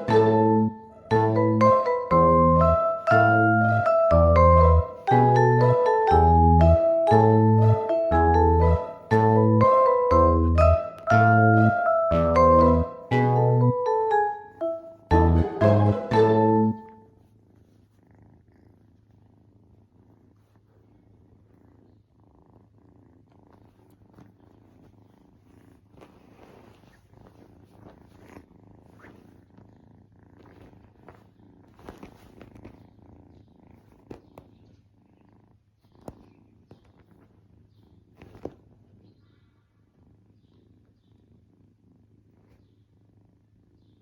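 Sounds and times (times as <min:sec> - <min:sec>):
kitten purring: 0:00.4 - 0:15.7, 0:16.5 - 0:44.0.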